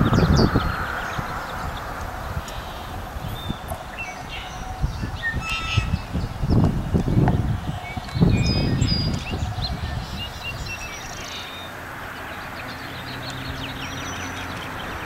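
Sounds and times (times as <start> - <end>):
low engine-like hum: 0.0 - 5.2
low rumble: 0.0 - 10.5
birds chirping: 0.0 - 15.0.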